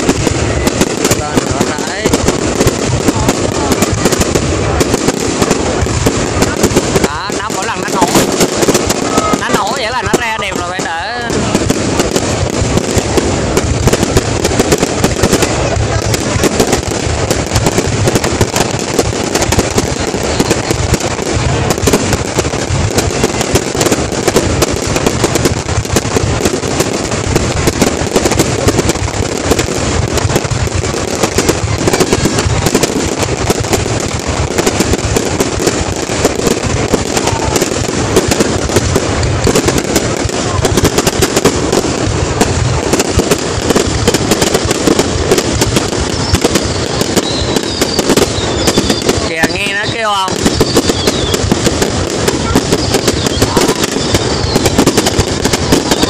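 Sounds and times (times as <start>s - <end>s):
fireworks crackling and popping: 0.0s - 56.0s.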